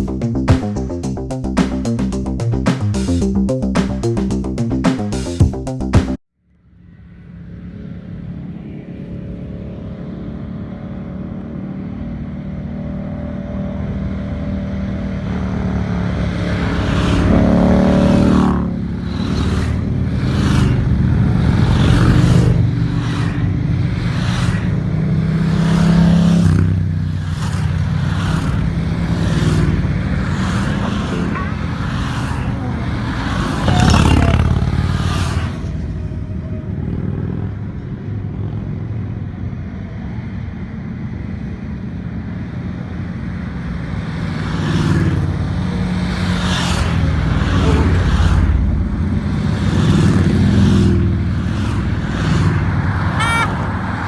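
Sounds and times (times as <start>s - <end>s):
motorcycle engine accelerating: 0.0s - 6.2s, 7.3s - 31.4s, 32.0s - 36.2s.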